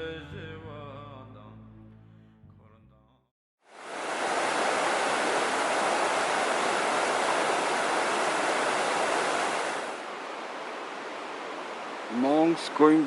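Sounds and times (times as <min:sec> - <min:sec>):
river water rushing over rocks: 0:03.7 - 0:13.0.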